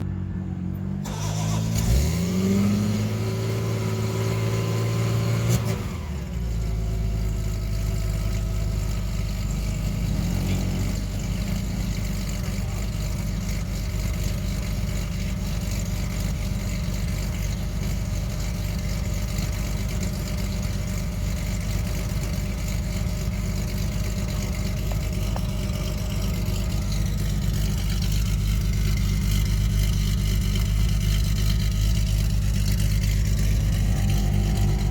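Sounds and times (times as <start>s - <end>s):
car engine starting and idling: 0.0s - 34.9s.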